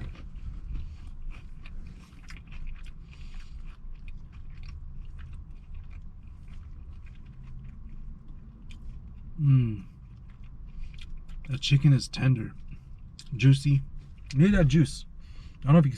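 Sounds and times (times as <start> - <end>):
chewing crispy food: 0.0 - 15.9
low steady hum: 0.0 - 15.9.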